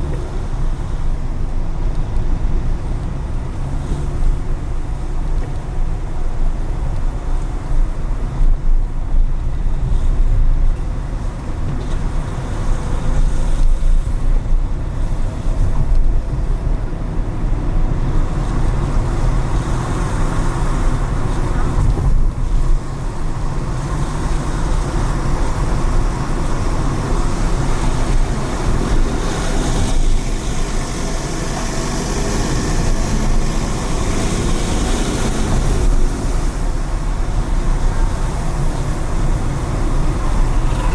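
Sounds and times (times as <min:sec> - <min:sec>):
car engine and road rumble: 0:00.0 - 0:40.9
tyre hiss on wet pavement: 0:23.7 - 0:40.9.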